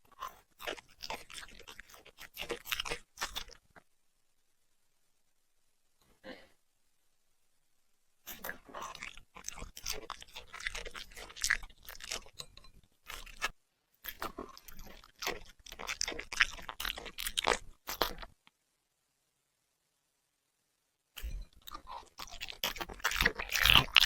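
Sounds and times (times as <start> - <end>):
puppy chewing crunchy food: 0.0 - 3.8, 8.3 - 18.4, 21.2 - 24.0.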